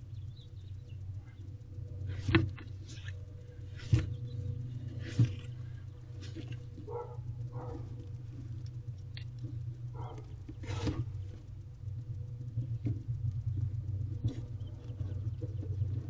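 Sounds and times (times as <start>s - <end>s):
owl scratching and tapping: 0.0s - 16.0s
steady low hum: 0.0s - 16.0s
rustle in nest box: 1.4s - 11.6s.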